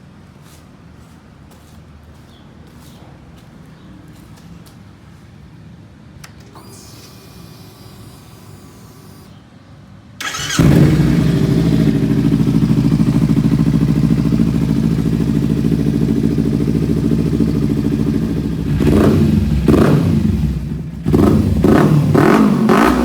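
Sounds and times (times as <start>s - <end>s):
motorcycle engine idling and revving: 10.2s - 23.0s.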